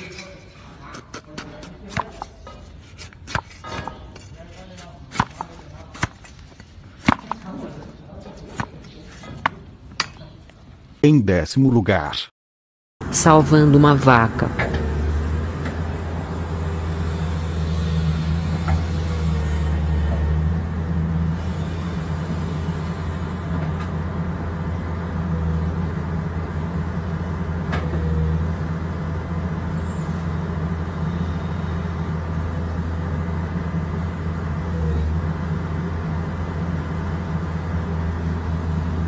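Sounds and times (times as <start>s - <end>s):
excavator diesel engine running: 13.0s - 39.0s.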